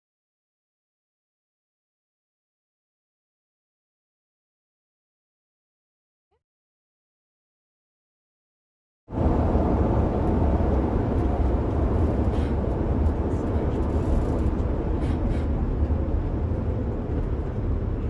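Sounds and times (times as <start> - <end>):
engine and road rumble: 9.1 - 18.0.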